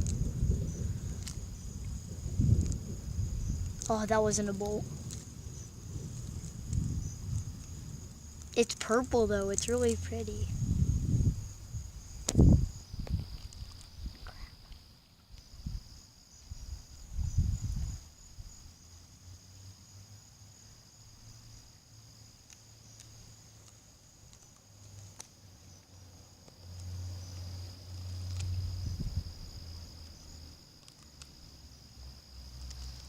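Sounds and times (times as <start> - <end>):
low rumble: 0.0 - 13.4
crickets trilling: 0.0 - 33.0.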